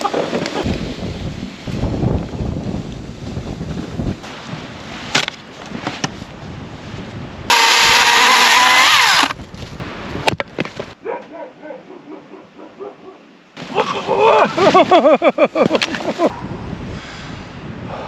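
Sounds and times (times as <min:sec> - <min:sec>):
small engine running fast: 0:07.5 - 0:09.4.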